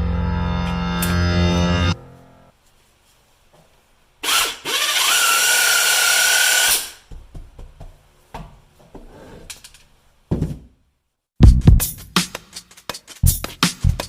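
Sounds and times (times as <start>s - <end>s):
power tool whining: 4.2s - 6.9s.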